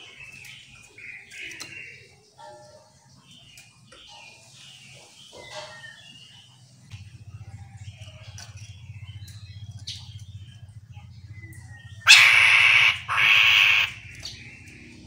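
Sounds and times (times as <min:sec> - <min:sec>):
bird calls and chirps: 0:00.0 - 0:15.0
low pulsing hum: 0:06.8 - 0:15.0.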